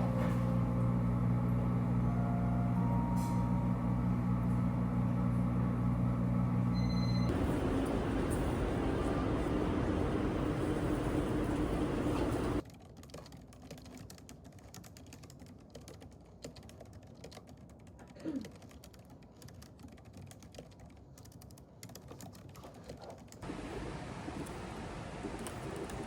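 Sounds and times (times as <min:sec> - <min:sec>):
rushing background noise: 0:07.3 - 0:12.6.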